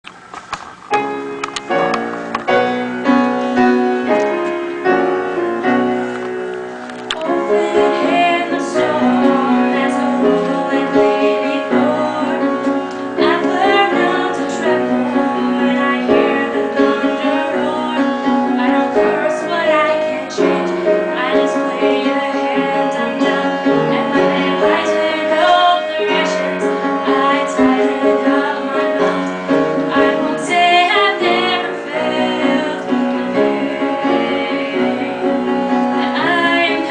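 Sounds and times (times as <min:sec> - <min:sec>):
piano accompaniment: 0:00.0 - 0:36.9
woman singing slow song: 0:07.2 - 0:35.4, 0:36.0 - 0:36.9.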